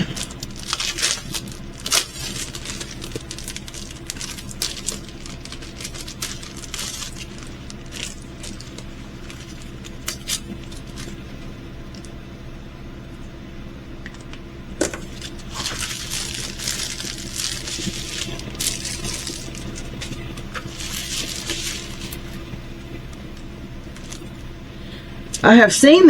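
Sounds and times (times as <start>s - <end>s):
packaging rustling and clicks: 0.0s - 11.2s, 14.8s - 24.4s
faint steady hum: 0.0s - 26.0s.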